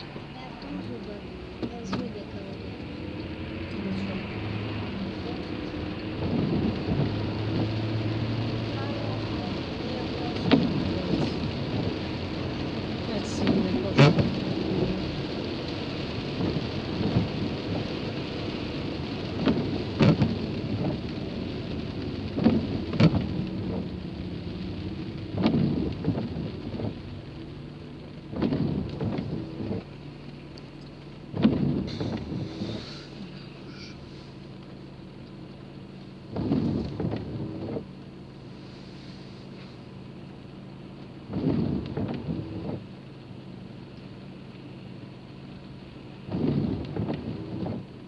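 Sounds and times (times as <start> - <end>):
low rumble: 0.0 - 35.0
car engine hum: 0.0 - 48.0
rain on a moving car: 0.0 - 48.0.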